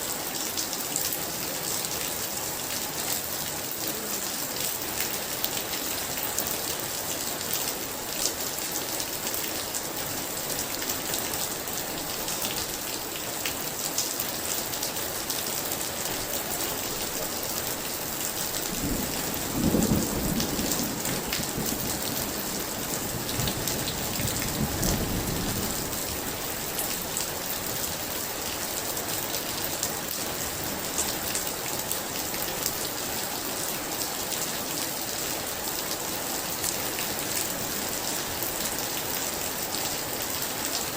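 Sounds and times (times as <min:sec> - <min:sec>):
heavy rain falling: 0:00.0 - 0:40.9
thunder rumbling: 0:18.7 - 0:26.2.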